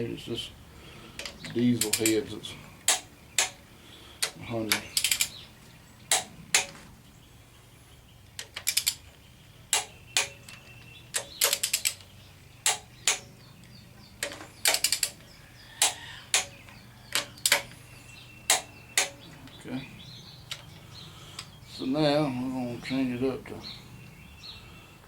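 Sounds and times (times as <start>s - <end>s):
torque wrench ratcheting clicks: 5.0s - 5.4s, 14.6s - 15.2s.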